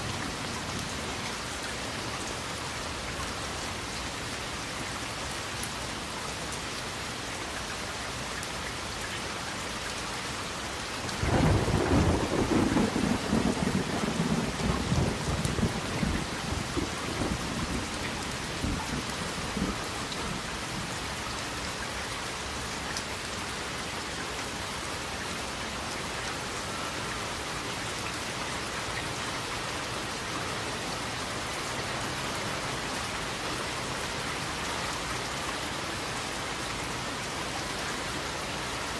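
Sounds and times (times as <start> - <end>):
steady rain falling: 0.0 - 38.9
thunder rolling: 11.3 - 17.9.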